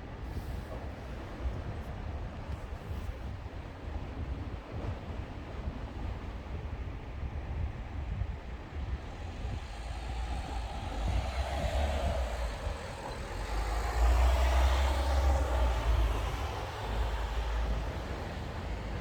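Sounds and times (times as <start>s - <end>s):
wind buffeting microphone: 0.0s - 19.0s
broad rushing noise: 8.6s - 19.0s.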